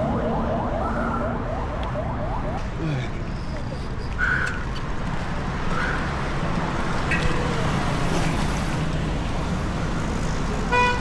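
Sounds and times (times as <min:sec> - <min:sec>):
road traffic noise: 0:00.0 - 0:11.0
low engine rumble: 0:02.6 - 0:11.0.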